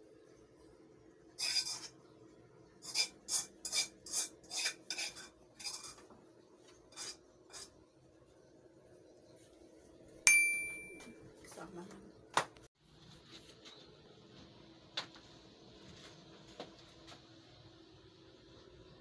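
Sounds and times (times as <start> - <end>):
kitchen utensils scraping: 1.4 - 2.0, 2.8 - 6.1, 6.7 - 7.8
sharp metallic clink: 10.3 - 11.1.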